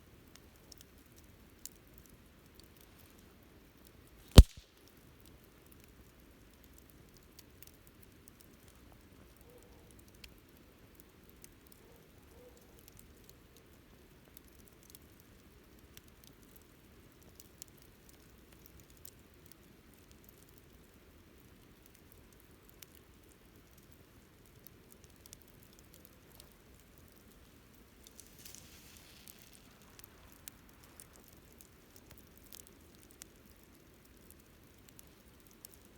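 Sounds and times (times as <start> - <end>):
campfire crackling and popping: 0.0 - 11.8, 12.8 - 35.9
hiss of burning fire: 4.2 - 4.8, 25.0 - 35.9.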